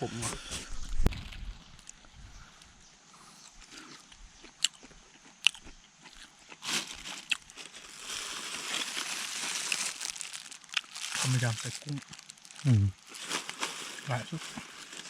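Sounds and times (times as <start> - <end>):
person chewing and crunching food: 3.4 - 15.0
rustle: 6.6 - 15.0.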